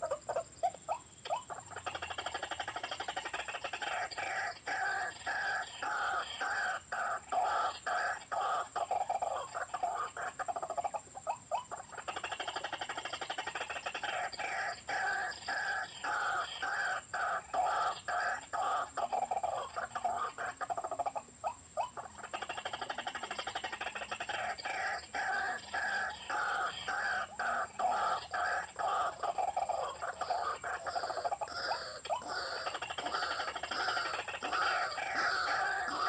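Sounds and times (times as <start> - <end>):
bird calls from a small speaker: 21.8 - 36.0.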